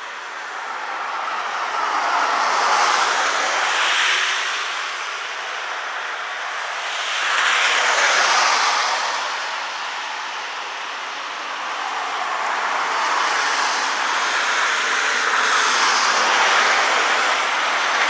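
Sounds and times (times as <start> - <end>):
car tyres hissing on wet street: 0.0 - 18.0.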